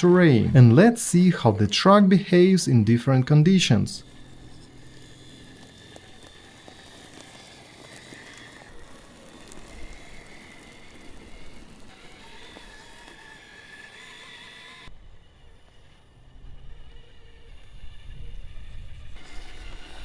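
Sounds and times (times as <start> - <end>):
tyres crackling on rock: 0.0 - 14.9
electric motor whine: 0.0 - 20.0.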